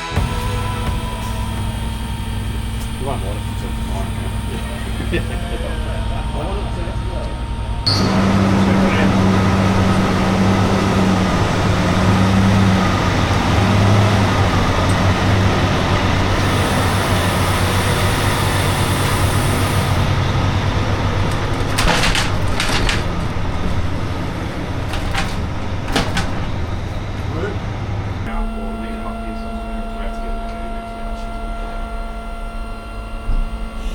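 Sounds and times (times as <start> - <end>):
high hiss: 0.0 - 20.3
diesel truck engine idling: 0.0 - 33.9.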